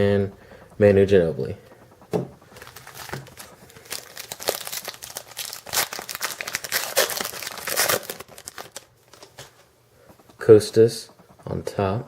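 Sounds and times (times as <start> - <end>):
plastic wrapper crinkling and tearing: 2.6 - 9.5.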